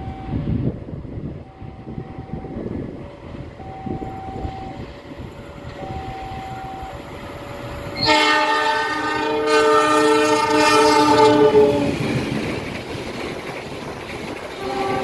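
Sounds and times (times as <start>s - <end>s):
train rumbling past: 0.0s - 15.0s
train horn chord: 8.0s - 12.0s, 14.6s - 15.0s.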